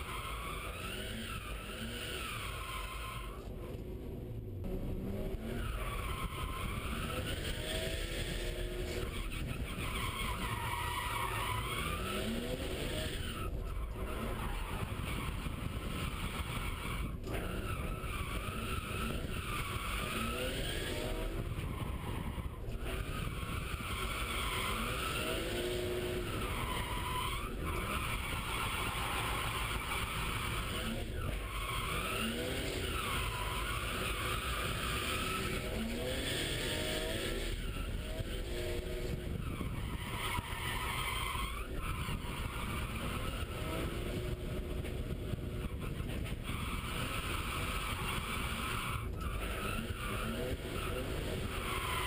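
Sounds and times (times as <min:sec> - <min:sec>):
car engine revving hard: 0:00.0 - 0:03.4, 0:04.6 - 0:52.0
tyres squealing: 0:05.4 - 0:43.9.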